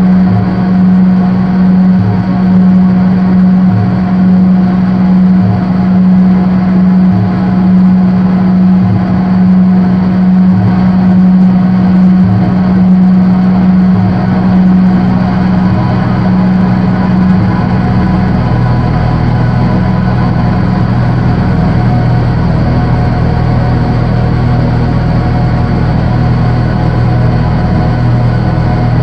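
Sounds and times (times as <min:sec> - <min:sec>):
deep pulsing tone: 0:00.0 - 0:29.0
synthesizer drone: 0:00.0 - 0:29.0.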